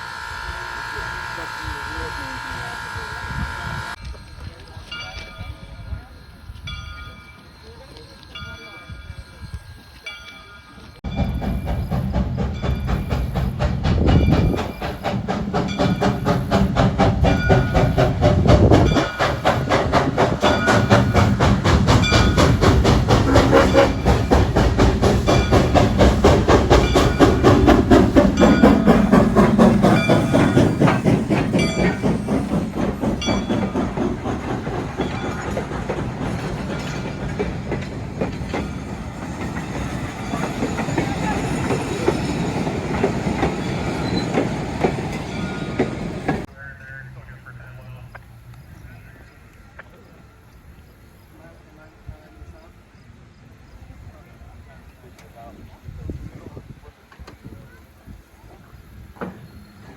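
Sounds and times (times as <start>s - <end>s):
train horn: 0.0s - 4.0s
train clattering past: 3.9s - 59.9s.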